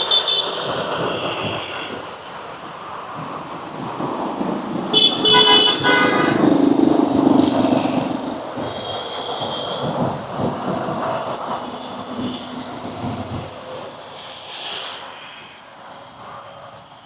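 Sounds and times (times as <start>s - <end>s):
vehicle horn honking: 0.0s - 0.7s, 4.9s - 6.7s, 8.7s - 10.0s
road traffic passing: 0.0s - 17.0s
vehicle engine passing: 4.8s - 8.7s.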